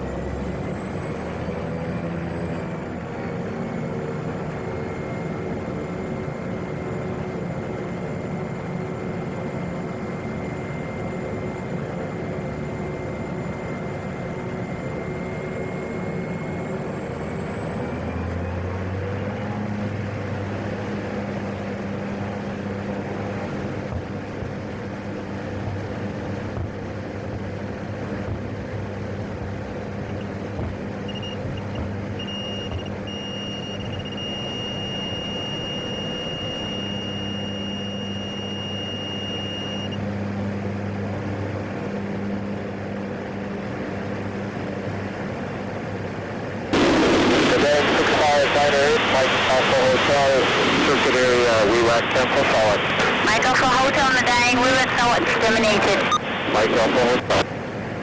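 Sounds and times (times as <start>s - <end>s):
turboprop engine whine: 0.0s - 58.0s
deep propeller drone: 34.6s - 58.0s.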